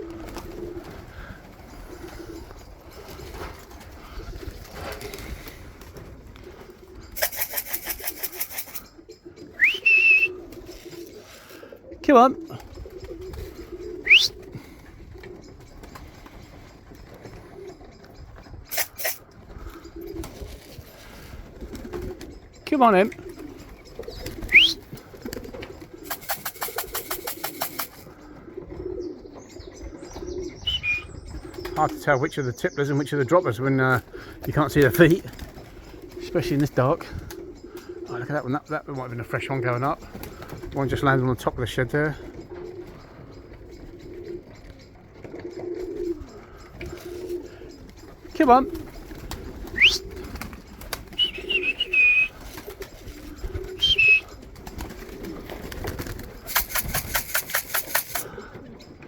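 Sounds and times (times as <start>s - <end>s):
pigeons cooing: 0.0s - 59.0s
rapid rattling strokes: 7.2s - 8.8s, 26.0s - 28.0s, 56.4s - 58.3s
rapid sharp clicks: 7.2s - 8.8s, 56.4s - 58.3s
rising whistle: 9.6s - 10.3s, 14.1s - 14.3s, 30.6s - 31.1s, 49.8s - 50.0s, 51.2s - 52.3s, 53.8s - 54.2s.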